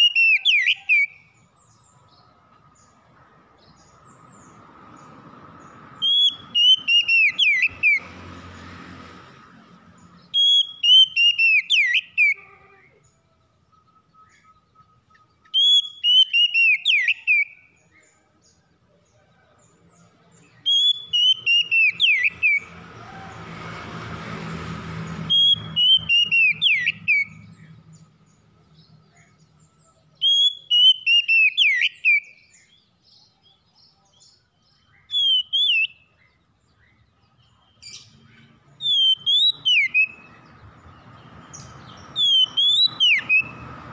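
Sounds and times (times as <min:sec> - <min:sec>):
songbird whistling: 0:00.0 - 0:01.8, 0:06.0 - 0:08.1, 0:10.2 - 0:12.4, 0:13.7 - 0:18.1, 0:20.6 - 0:22.7, 0:25.2 - 0:27.6, 0:30.2 - 0:32.8, 0:34.8 - 0:37.0, 0:37.6 - 0:40.6, 0:41.5 - 0:43.7.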